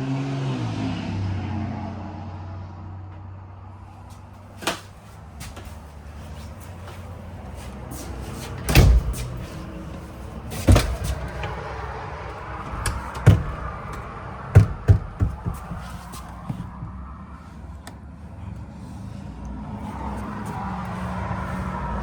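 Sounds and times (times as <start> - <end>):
doors knocking shut: 8.5 - 11.8, 12.6 - 16.6.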